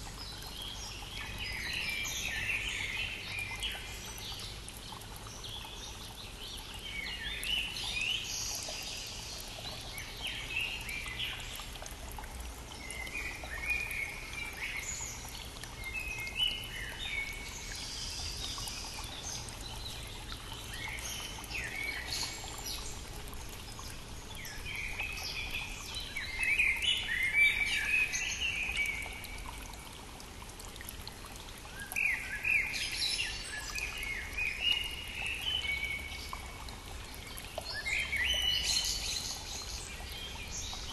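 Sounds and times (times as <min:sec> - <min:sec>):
songbirds singing: 0:00.0 - 0:30.0, 0:30.8 - 0:40.9.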